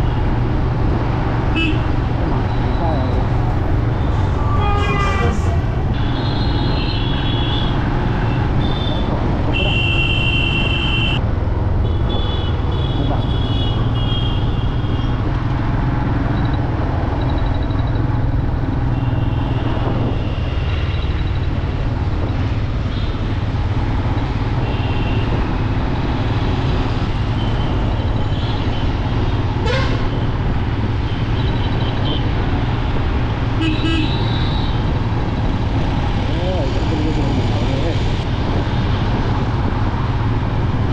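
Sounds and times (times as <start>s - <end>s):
motorcycle road and wind rumble: 0.0s - 40.9s
vehicle horns honking: 4.0s - 11.2s, 12.0s - 15.2s, 29.6s - 30.2s, 33.6s - 34.9s.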